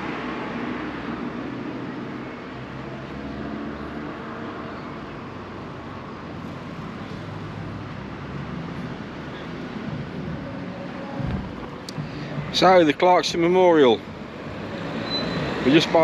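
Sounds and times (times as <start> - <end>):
road traffic noise: 0.0 - 16.0
vehicles passing: 0.0 - 16.0.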